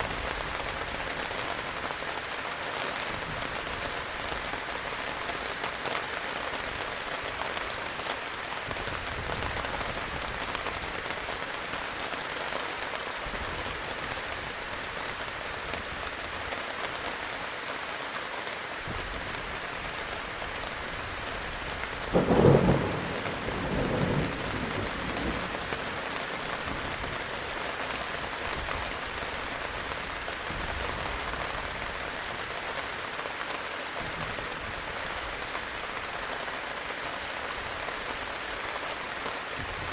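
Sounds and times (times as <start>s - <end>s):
heavy rain falling: 0.0s - 39.9s
distant thunder rumbles: 21.0s - 27.1s
thunderclap: 22.1s - 25.9s.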